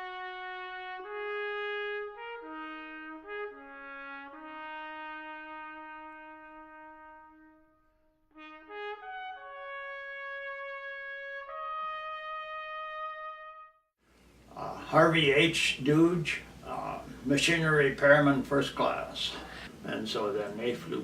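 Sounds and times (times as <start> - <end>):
slow trumpet-led brass melody: 0.0 - 13.9.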